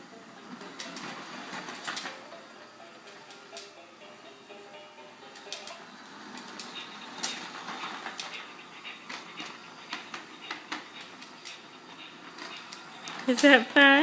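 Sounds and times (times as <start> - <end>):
toy train rattling on track: 0.4 - 14.0.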